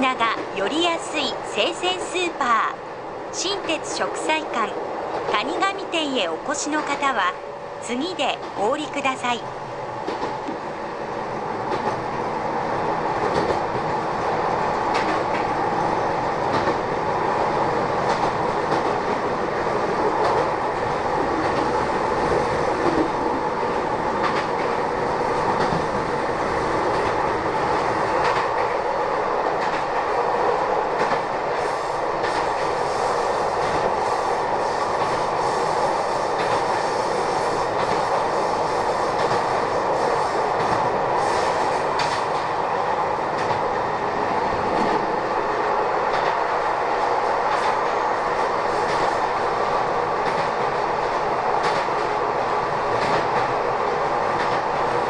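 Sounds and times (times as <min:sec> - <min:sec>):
rail joint clacks: 0:14.7 - 0:15.8, 0:40.6 - 0:42.6, 0:48.7 - 0:49.4, 0:50.2 - 0:50.8, 0:51.6 - 0:52.2, 0:52.9 - 0:53.6.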